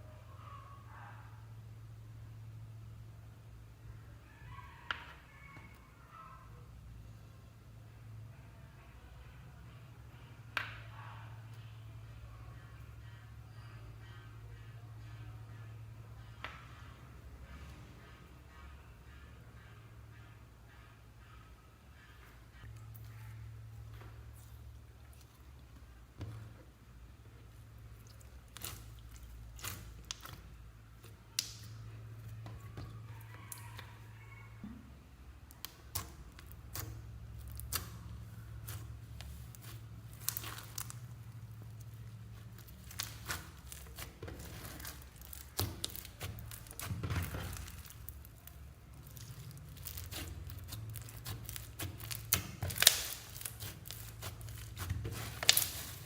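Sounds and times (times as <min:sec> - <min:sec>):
low steady hum: 0:00.0 - 0:56.0
slime squishing and crackling: 0:27.4 - 0:34.0, 0:35.4 - 0:56.0.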